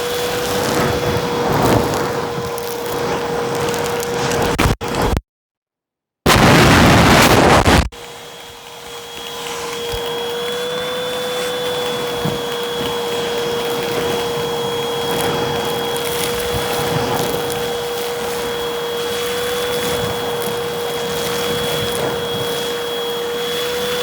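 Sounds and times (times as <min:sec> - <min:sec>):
vacuum cleaner picking up debris: 0:00.0 - 0:05.2, 0:06.3 - 0:24.0
vacuum motor whine: 0:00.0 - 0:05.2, 0:06.3 - 0:24.0.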